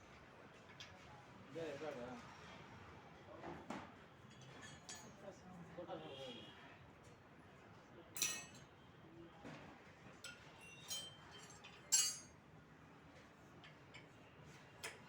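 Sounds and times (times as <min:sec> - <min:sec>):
metal tools clinking: 0:10.7 - 0:12.3.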